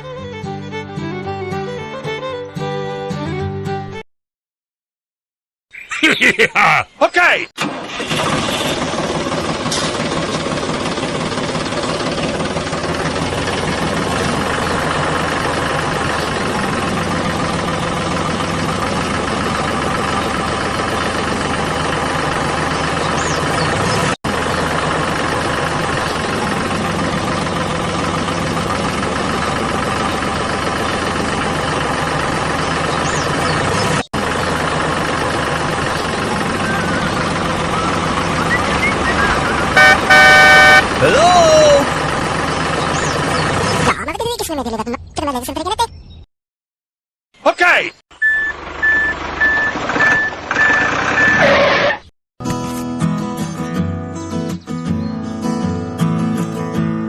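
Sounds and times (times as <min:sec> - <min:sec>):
engine running steadily: 0:07.6 - 0:43.9, 0:48.2 - 0:52.0.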